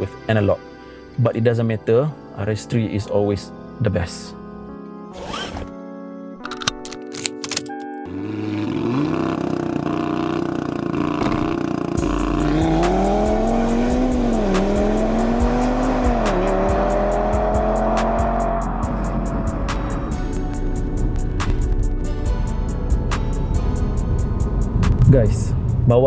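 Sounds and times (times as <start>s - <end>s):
car engine accelerating hard: 8.1s - 20.2s
music with heavy bass beat: 12.0s - 25.7s.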